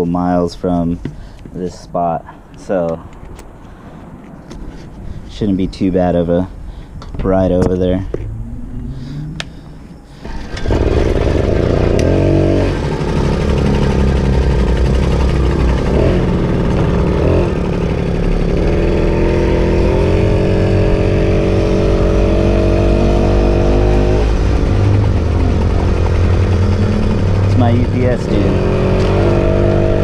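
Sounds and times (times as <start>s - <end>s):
wind rumble on microphone: 4.6s - 9.4s
moped engine accelerating: 8.2s - 30.0s.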